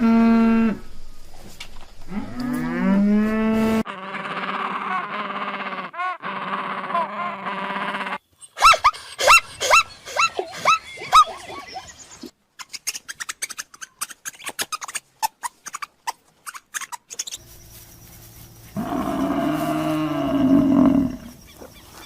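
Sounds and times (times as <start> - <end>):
wild animal roaring: 18.8 - 21.3.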